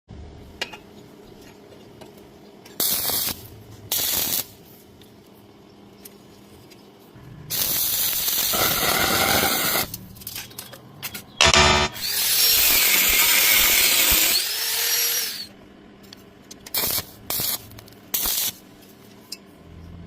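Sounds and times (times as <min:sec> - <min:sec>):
electric welding arc hissing: 0:02.8 - 0:04.6, 0:07.5 - 0:10.0, 0:11.8 - 0:15.5, 0:16.7 - 0:18.6.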